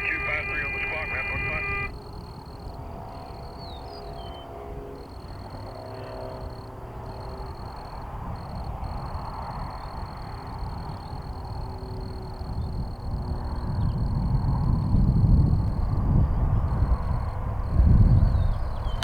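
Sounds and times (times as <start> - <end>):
distant jet rumble: 0.0 - 3.3.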